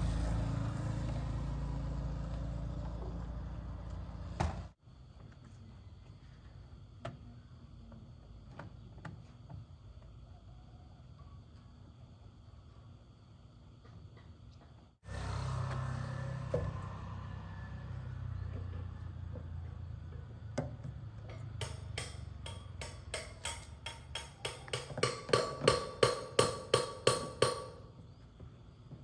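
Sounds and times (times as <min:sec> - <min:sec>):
sharp evenly spaced knocks: 0:21.3 - 0:27.9.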